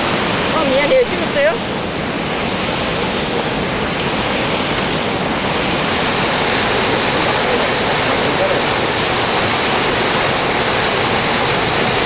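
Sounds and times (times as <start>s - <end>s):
water pouring over rocks: 3.8s - 12.0s.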